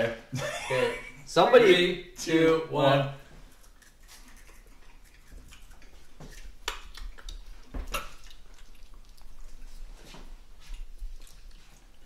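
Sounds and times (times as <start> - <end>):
people chewing crumbly candy: 3.4 - 12.0.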